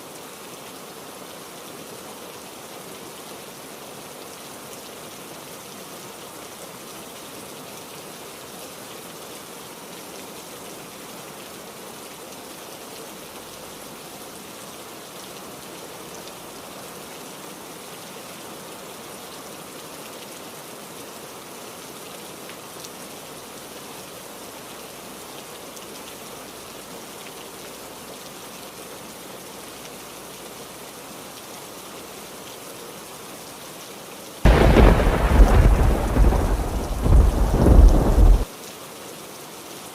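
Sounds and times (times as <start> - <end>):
steady rain falling: 0.0 - 39.9
loud thunder clap: 34.5 - 38.5.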